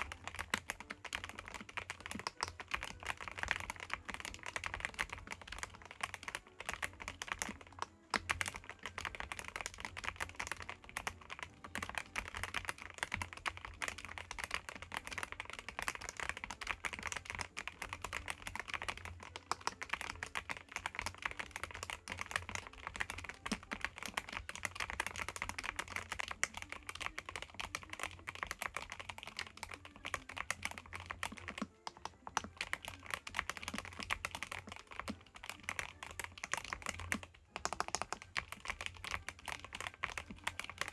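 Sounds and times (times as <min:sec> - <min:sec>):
fast mechanical keyboard typing: 0:00.0 - 0:40.9.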